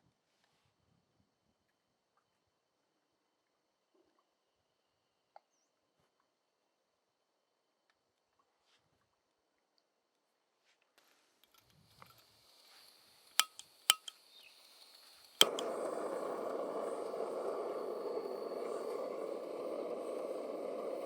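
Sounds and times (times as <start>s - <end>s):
light clinks with ring: 13.4s - 14.1s
sharp click: 13.4s - 14.1s, 15.4s - 15.8s.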